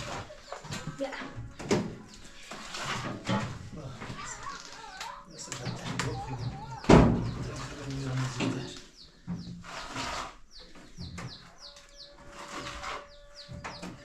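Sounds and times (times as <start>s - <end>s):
small birds chirping: 3.4s - 14.0s.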